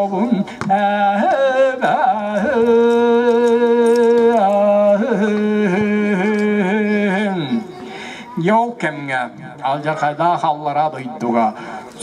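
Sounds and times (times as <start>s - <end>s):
man singing unaccompanied: 0.0s - 7.7s.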